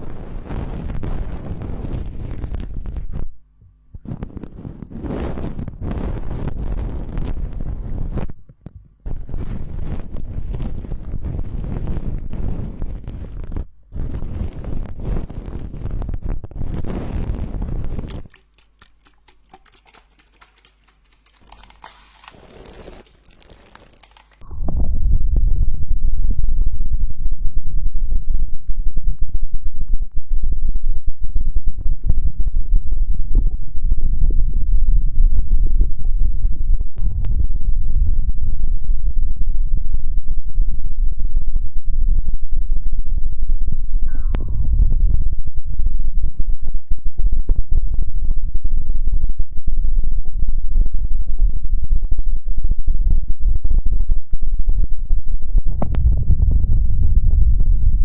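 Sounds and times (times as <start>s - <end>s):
hands rubbing over microphone: 4.0s - 8.3s, 16.7s - 24.4s.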